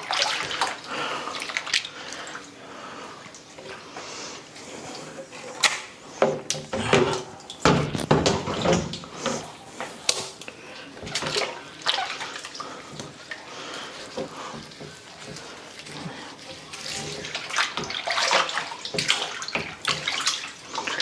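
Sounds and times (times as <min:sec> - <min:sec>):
water running and splashing: 0:00.0 - 0:02.5, 0:06.6 - 0:21.0
dishes knocking and clattering: 0:06.2 - 0:09.5.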